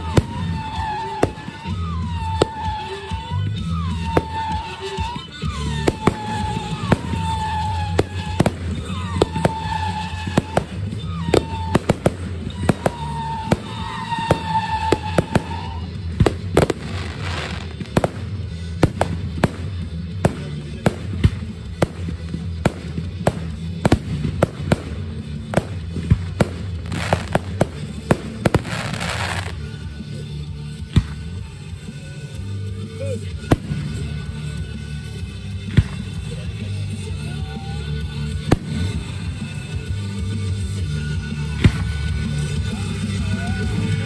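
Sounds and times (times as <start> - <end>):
fireworks bursting with sharp bangs: 0.0 - 30.1, 30.7 - 32.0, 33.3 - 37.0, 38.2 - 40.6, 41.3 - 43.1
fireworks crackling: 0.0 - 30.1
music with low beat: 0.0 - 32.4.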